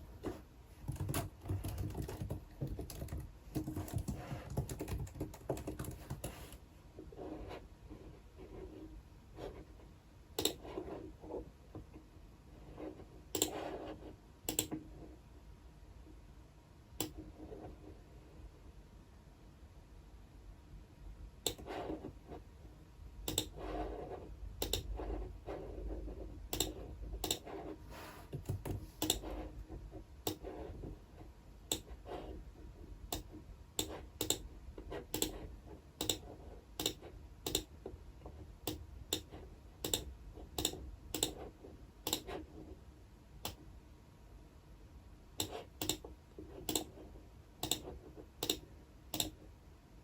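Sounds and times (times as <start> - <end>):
keyboard and mouse clicks: 0.8 - 6.6, 10.4 - 10.6, 13.4 - 13.6, 14.5 - 14.8, 21.5 - 21.7, 23.3 - 23.6, 24.6 - 24.9, 26.5 - 27.5, 28.3 - 29.4, 30.2 - 30.4, 31.7 - 31.9, 33.1 - 34.5, 35.1 - 35.4, 36.0 - 37.8, 38.7 - 41.4, 42.0 - 42.4, 45.4 - 47.0, 47.6 - 49.4.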